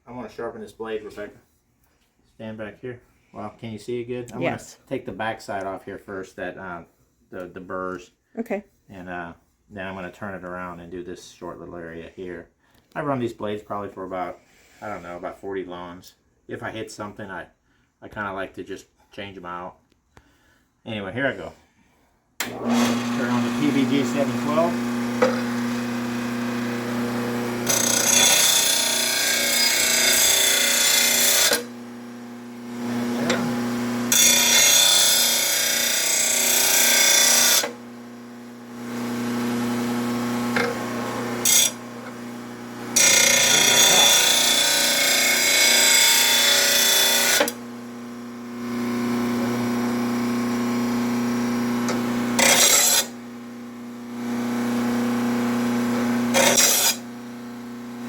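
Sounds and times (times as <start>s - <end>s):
blade grinding on grinding wheel: 22.4s - 53.3s, 54.0s - 57.4s
sharpener motor humming: 22.6s - 48.7s, 51.7s - 53.2s, 56.2s - 57.2s.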